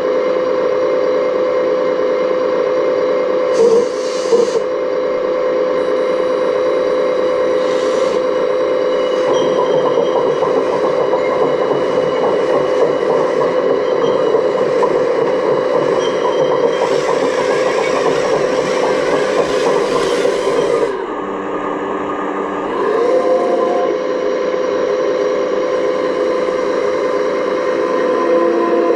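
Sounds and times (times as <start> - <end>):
model excavator motor whine: 0.0 - 28.9
mechanical clatter: 9.1 - 21.0.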